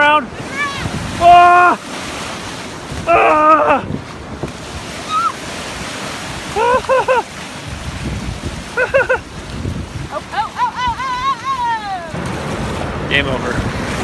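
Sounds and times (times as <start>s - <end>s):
ocean surf washing up beach: 0.0s - 14.0s
wind on microphone: 0.3s - 14.0s
person shrieking: 0.6s - 1.8s, 3.1s - 3.9s
person squealing: 0.6s - 1.8s, 3.1s - 3.9s, 6.6s - 7.2s.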